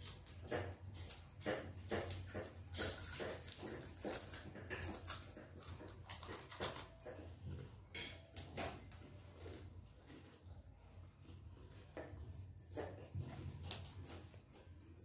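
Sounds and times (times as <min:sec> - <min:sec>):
crunchy snack being chewed: 0:02.7 - 0:12.3.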